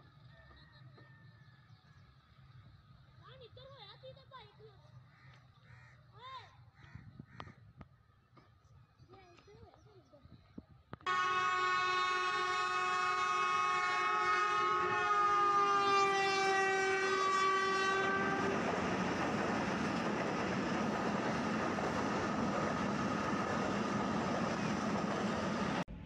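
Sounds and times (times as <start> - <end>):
locomotive horn blast: 11.0 - 19.1
train coaches rushing and rattling: 14.8 - 25.8.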